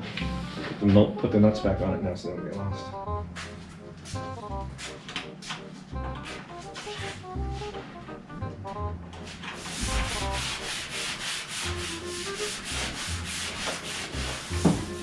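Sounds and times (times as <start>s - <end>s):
sanding metal rasping strokes: 9.4s - 15.0s.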